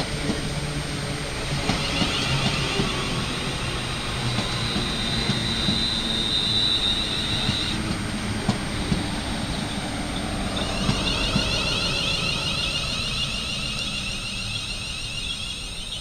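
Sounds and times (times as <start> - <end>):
train rumbling past: 0.0 - 16.0
high thin whine: 1.4 - 16.0
wavering high tone: 1.7 - 7.9, 9.6 - 16.0.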